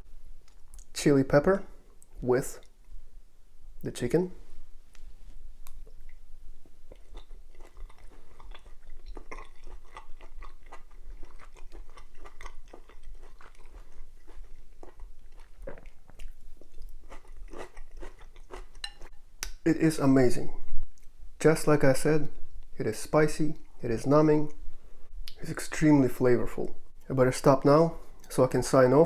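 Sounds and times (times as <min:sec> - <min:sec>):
person chewing crunchy food: 0:05.6 - 0:19.2.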